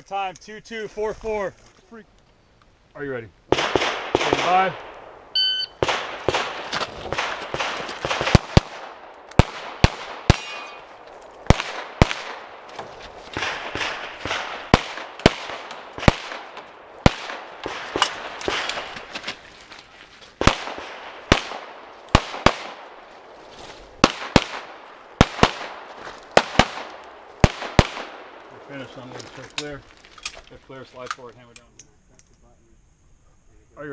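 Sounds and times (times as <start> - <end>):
pistol shots with echo: 3.5 - 5.1, 5.8 - 10.9, 13.4 - 18.9, 20.4 - 23.0, 24.0 - 28.4.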